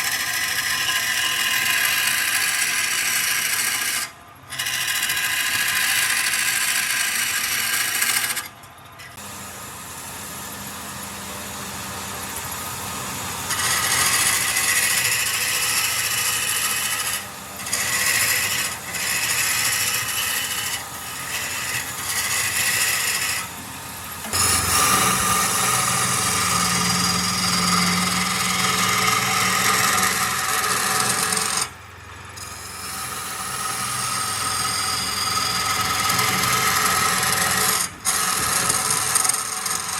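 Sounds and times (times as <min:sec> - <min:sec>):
tool scraping spinning wood: 0:00.0 - 0:09.3, 0:10.8 - 0:39.9
faint lathe motor tone: 0:00.0 - 0:39.9.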